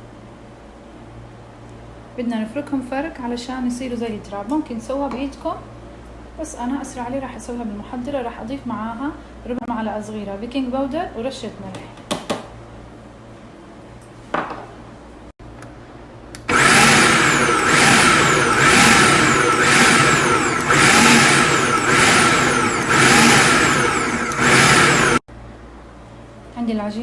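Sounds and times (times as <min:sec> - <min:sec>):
food processor motor running: 0:16.4 - 0:25.2.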